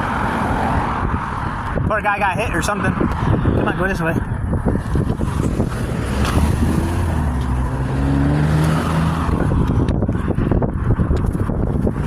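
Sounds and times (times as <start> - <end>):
car driving past: 5.2 - 9.5.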